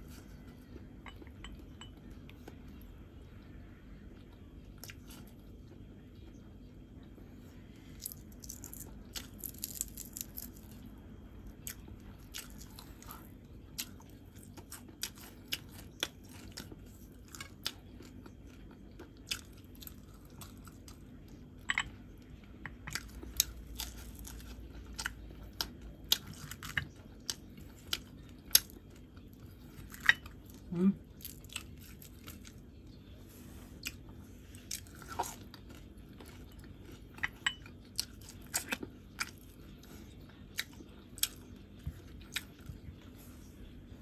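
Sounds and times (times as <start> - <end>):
person chewing: 7.9 - 10.8, 11.6 - 21.0, 22.7 - 43.6.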